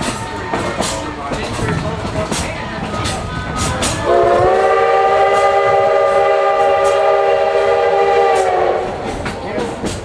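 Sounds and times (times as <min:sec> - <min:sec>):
steam whistle blast: 0:04.1 - 0:08.8.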